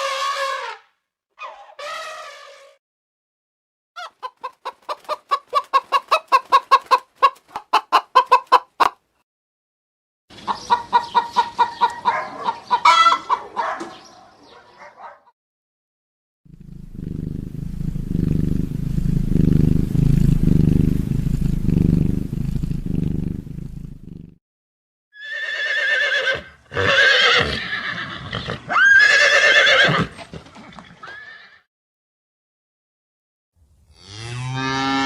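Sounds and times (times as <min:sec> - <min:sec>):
low pulsing rumble: 0:16.5 - 0:24.1
horse whinnying: 0:25.2 - 0:31.6.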